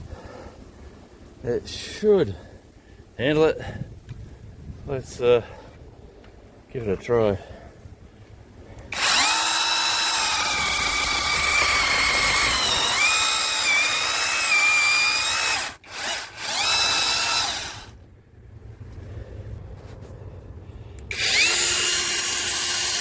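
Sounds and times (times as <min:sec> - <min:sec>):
electric chainsaw motor whine: 0:08.9 - 0:18.0, 0:21.0 - 0:23.0.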